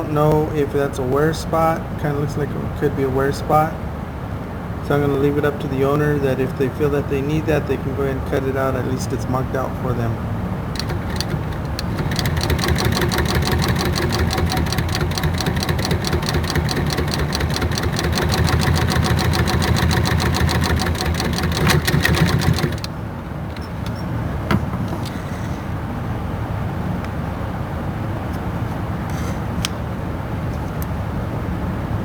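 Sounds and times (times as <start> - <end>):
sewing machine stitching: 10.7 - 24.2
click: 10.8 - 19.0, 23.5 - 24.0, 29.1 - 29.8.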